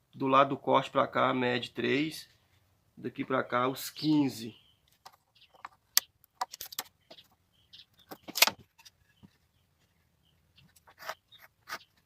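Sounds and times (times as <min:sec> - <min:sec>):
wood slats and tools handled: 0:04.9 - 0:07.2, 0:08.0 - 0:09.9.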